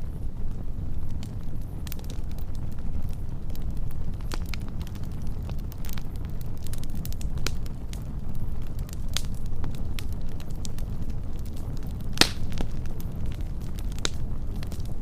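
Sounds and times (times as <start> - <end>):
low rumble of fire: 0.0 - 15.0
wood fire crackling: 0.0 - 15.0
loud fire pop: 12.1 - 12.7.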